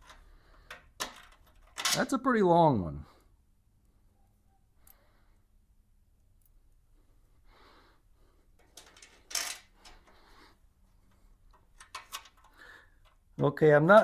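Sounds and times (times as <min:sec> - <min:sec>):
metal bolts clicking and scraping: 0:00.0 - 0:02.1, 0:08.6 - 0:10.1, 0:11.5 - 0:13.2
hardware rattling: 0:08.6 - 0:10.1, 0:11.5 - 0:13.2.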